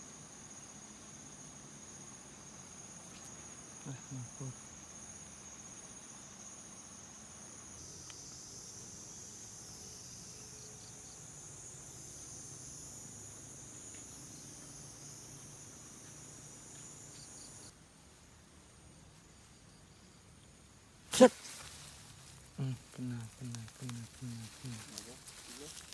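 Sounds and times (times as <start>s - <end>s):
cicadas droning: 0.0s - 25.9s.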